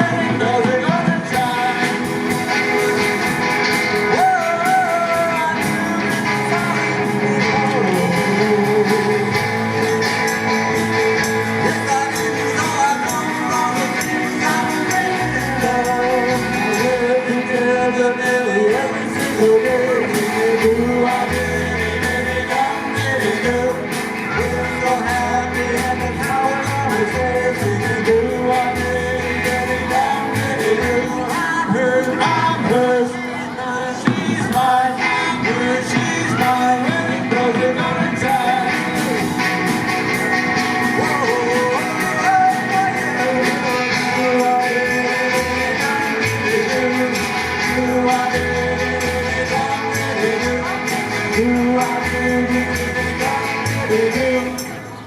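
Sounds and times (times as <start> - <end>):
deep bass line: 0.0 - 33.0, 34.1 - 54.6
live rock band playing: 0.0 - 55.0
person singing: 0.0 - 55.0.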